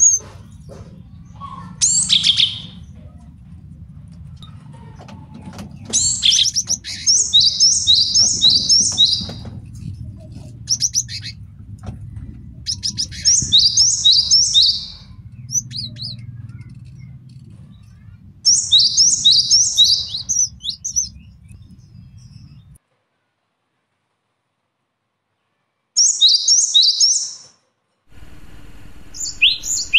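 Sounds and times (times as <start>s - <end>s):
faint low hum: 0.0s - 24.7s
bird chips: 5.4s - 11.5s, 12.2s - 22.8s, 29.0s - 29.9s.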